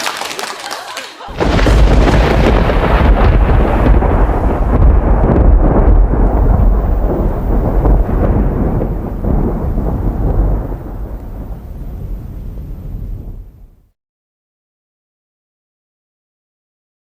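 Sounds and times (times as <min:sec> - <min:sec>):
rolling rumble of thunder: 0:01.3 - 0:13.8.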